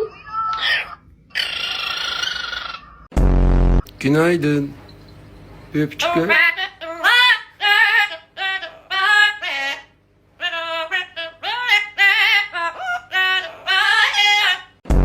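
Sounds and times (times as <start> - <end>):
parrot warbling: 0.0 - 3.1, 6.0 - 14.8.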